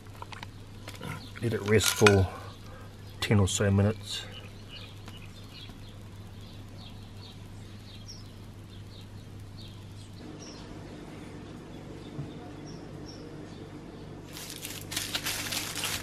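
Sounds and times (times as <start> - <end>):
bird chirping: 0.4 - 14.2
low hum: 4.4 - 16.0.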